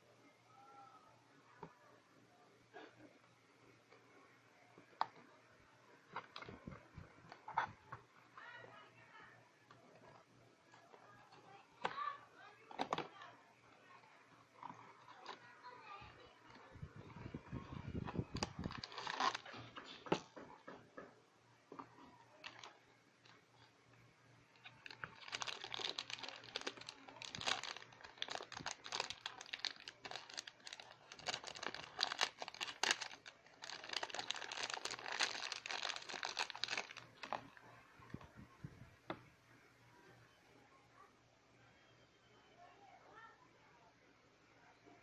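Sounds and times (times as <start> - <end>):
packaging crinkling and tearing: 18.3 - 19.6, 24.6 - 37.6.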